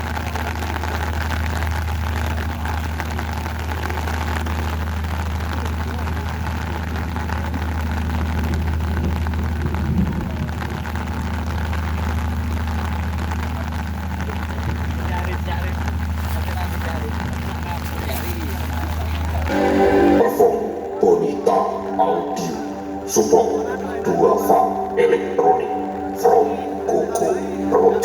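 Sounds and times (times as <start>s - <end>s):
low engine hum: 0.0s - 21.8s
background hiss: 15.1s - 28.0s.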